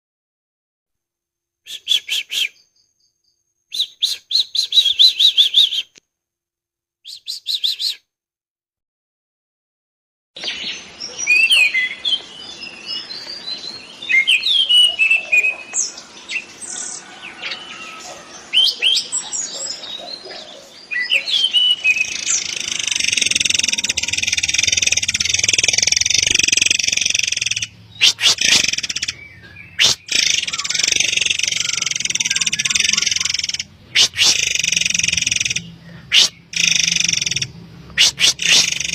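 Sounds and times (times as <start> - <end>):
bird whistling and chirping: 1.7 - 3.0, 3.7 - 5.9, 7.1 - 8.0, 10.4 - 38.9
sharp clicks: 22.7 - 29.2, 29.8 - 38.9.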